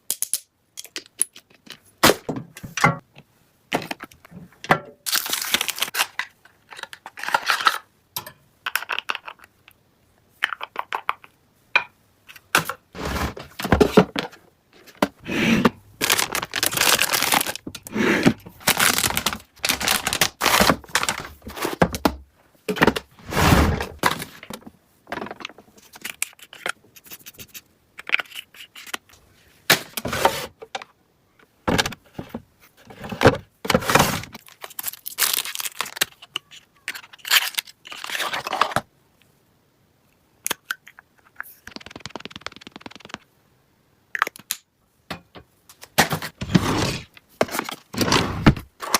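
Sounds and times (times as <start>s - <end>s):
packaging rustling and crinkling: 5.1s - 7.8s, 15.6s - 22.2s, 33.8s - 36.3s.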